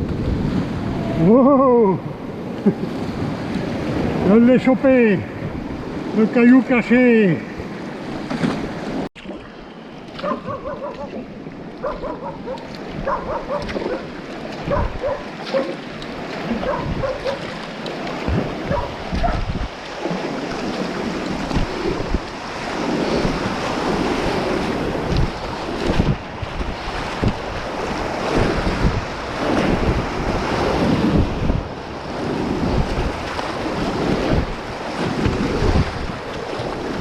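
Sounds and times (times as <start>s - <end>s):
wind buffeting microphone: 0.0s - 6.2s, 11.6s - 37.0s.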